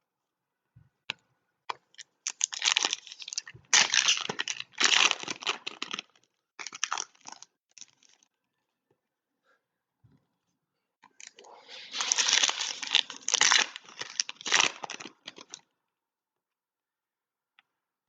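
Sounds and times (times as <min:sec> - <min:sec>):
card pack wrappers tearing and crinkling: 0:02.3 - 0:08.2, 0:11.3 - 0:15.6.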